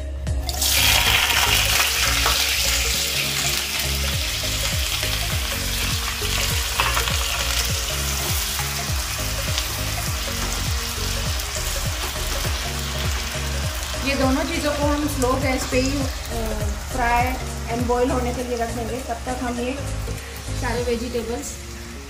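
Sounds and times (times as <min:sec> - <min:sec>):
potatoes sizzling in hot oil: 0:00.5 - 0:22.0.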